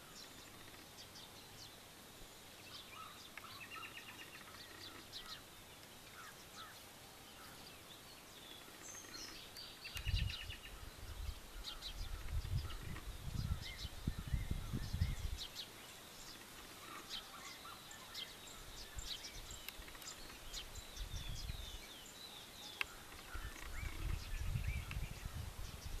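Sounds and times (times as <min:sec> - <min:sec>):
wild birds chirping: 0:00.0 - 0:26.0
low rumble on microphone: 0:10.0 - 0:15.5, 0:23.3 - 0:26.0.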